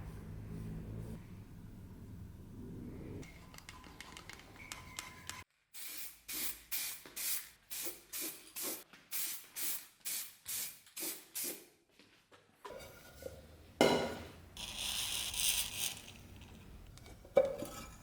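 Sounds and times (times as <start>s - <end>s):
short sprays of liquid: 5.8s - 11.7s.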